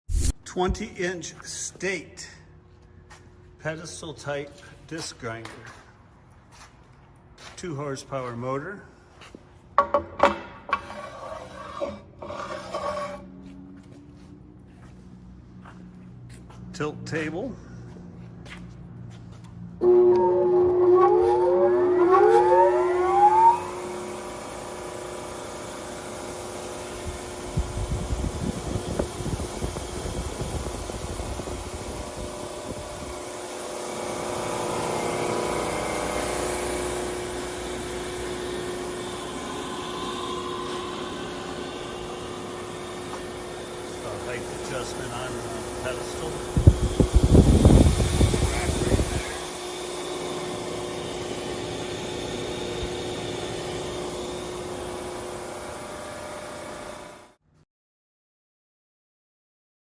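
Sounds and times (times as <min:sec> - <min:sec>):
electric machine hum: 0:19.7 - 0:57.4
disc sander motor whirring: 0:19.8 - 0:57.1.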